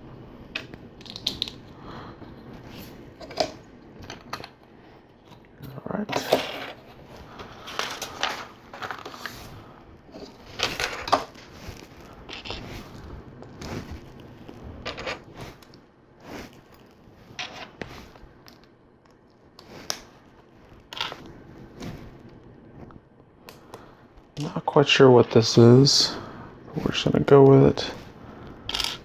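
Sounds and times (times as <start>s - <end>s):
plastic bricks rattling and clicking: 0.6s - 1.6s.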